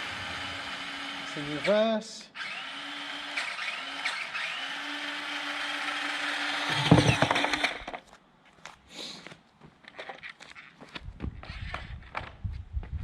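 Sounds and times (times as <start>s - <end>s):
electric motors whining: 0.0s - 1.8s, 2.4s - 8.0s
loud knocks clattering: 6.7s - 8.0s.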